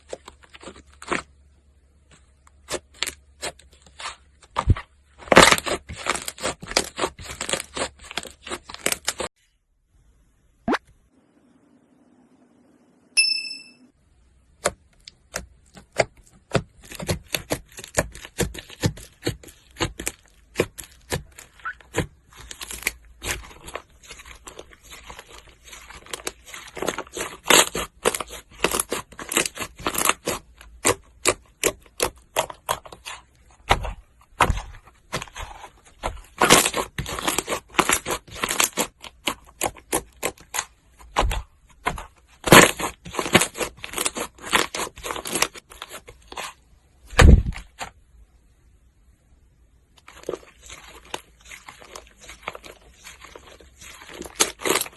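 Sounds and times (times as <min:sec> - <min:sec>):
bell-like ding: 0:13.2 - 0:13.9.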